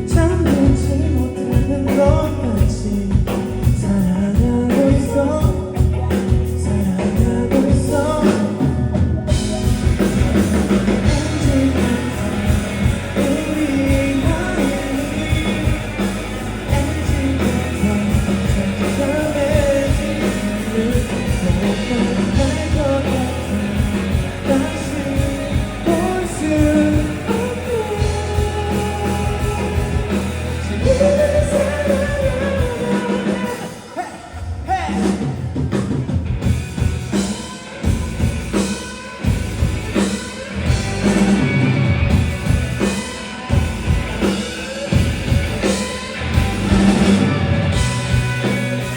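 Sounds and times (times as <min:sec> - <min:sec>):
lead vocalist singing: 0:00.0 - 0:36.0
live rock band: 0:00.0 - 0:48.9.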